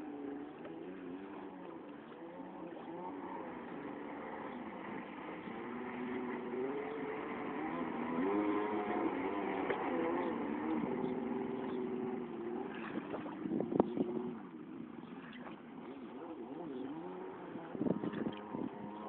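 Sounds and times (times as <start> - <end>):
jet ski engine revving: 0.0 - 19.0.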